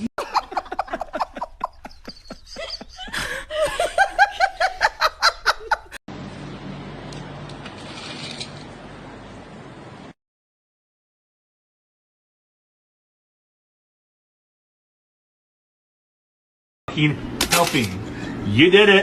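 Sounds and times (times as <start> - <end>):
high-pitched laughter: 0.0 - 6.0.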